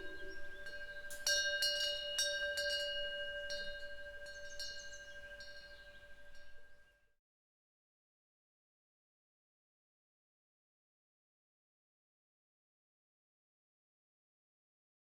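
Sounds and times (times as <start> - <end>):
wind bell ringing: 0.0 - 6.8.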